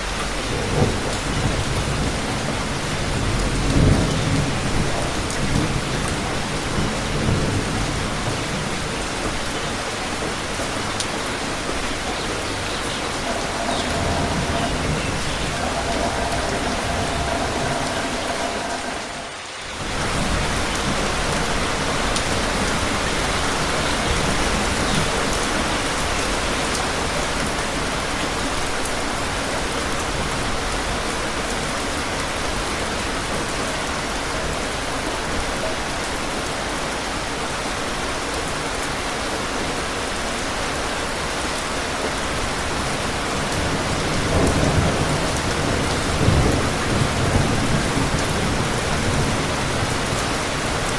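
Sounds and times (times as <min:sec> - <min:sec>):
low rumble of thunder: 0:00.0 - 0:27.1, 0:42.8 - 0:50.9
heavy rain hissing: 0:00.0 - 0:50.9.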